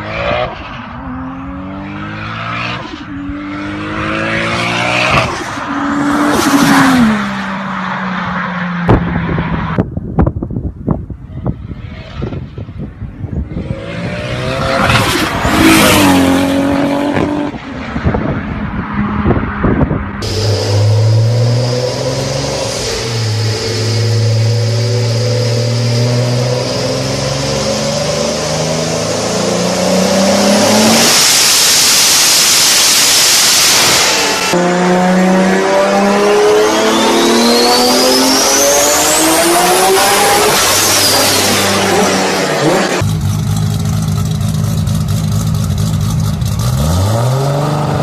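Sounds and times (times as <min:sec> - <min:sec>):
car engine revving: 0:00.0 - 0:08.3, 0:13.5 - 0:18.6, 0:19.2 - 0:48.0
loud rushing noise: 0:00.0 - 0:09.9, 0:11.4 - 0:43.2.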